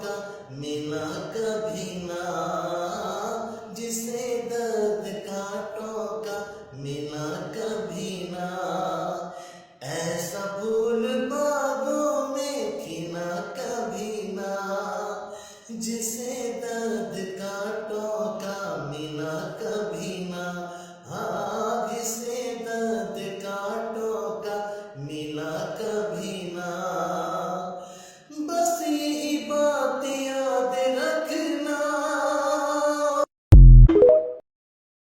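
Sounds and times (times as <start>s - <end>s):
musical accompaniment: 33.6s - 34.4s.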